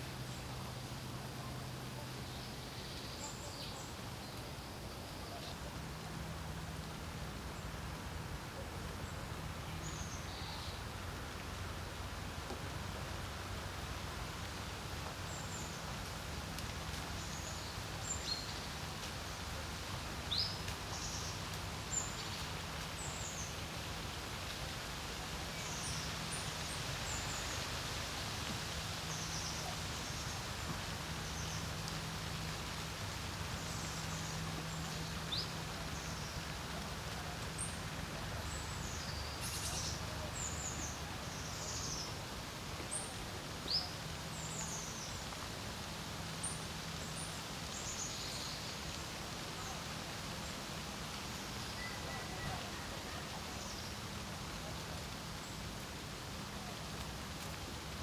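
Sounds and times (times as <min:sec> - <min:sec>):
wind hiss: 0:00.0 - 0:58.0
small birds chirping: 0:29.0 - 0:57.6.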